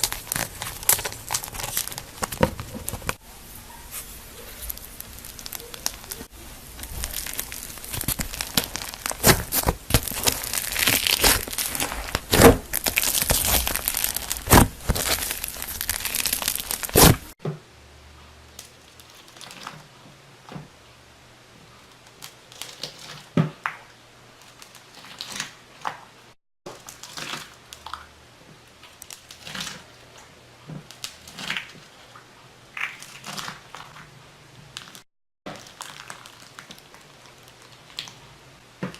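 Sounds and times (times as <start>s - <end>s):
slime squeezed by hand crackling: 3.8s - 17.4s.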